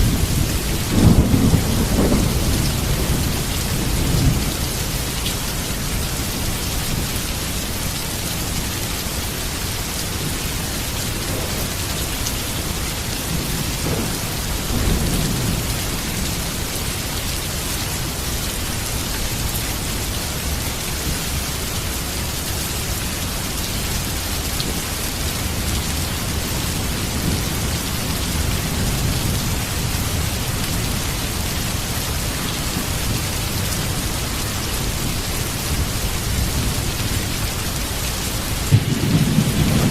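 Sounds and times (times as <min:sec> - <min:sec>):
thunder rumbling: 0:00.0 - 0:05.8, 0:11.2 - 0:16.8, 0:38.5 - 0:39.9
heavy rain: 0:00.0 - 0:39.9.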